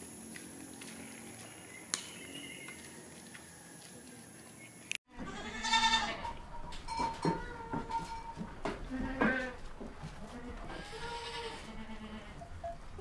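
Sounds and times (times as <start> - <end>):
goat bleating: 5.1 - 6.4, 8.8 - 9.6, 10.2 - 12.4.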